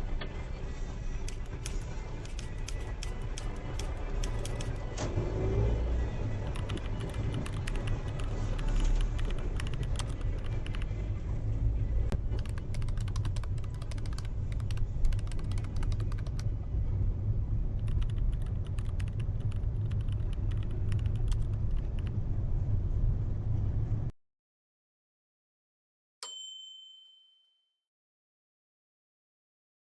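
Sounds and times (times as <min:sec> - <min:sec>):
car engine and road rumble: 0:00.0 - 0:24.1
rapid clicking and creaking: 0:01.3 - 0:05.0, 0:06.4 - 0:10.9, 0:12.2 - 0:16.5, 0:17.8 - 0:22.2.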